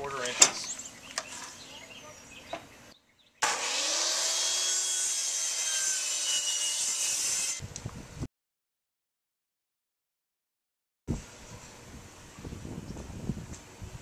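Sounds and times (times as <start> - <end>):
power saw cutting plywood: 3.4 - 7.6.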